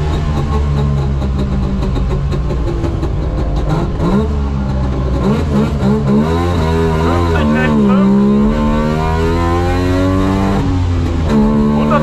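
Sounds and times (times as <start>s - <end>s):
car engine revving high: 3.6s - 12.0s.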